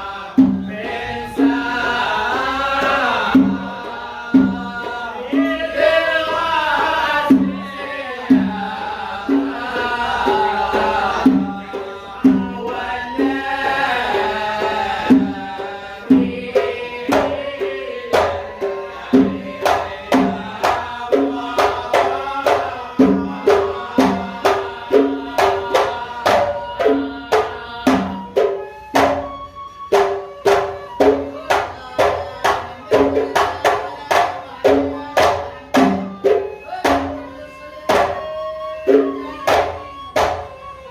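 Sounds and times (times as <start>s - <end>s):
hand drums beating: 0.2s - 40.9s
live band playing melody: 25.9s - 32.9s, 34.0s - 40.9s.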